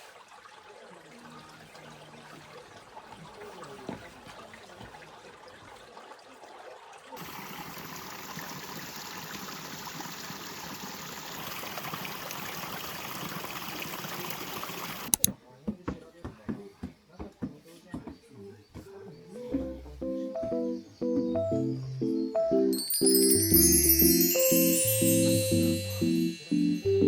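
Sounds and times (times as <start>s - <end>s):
stream running over rocks: 7.0s - 15.2s
sharp click: 15.1s - 15.3s.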